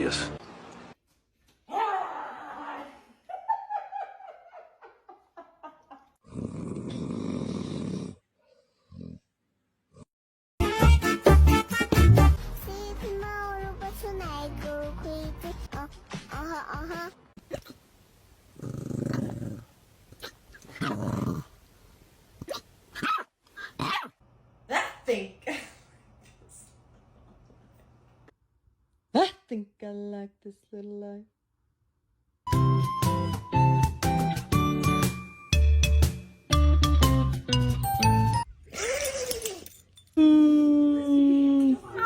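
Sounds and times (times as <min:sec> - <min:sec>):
dog growling: 0:06.2 - 0:09.3, 0:18.6 - 0:21.6.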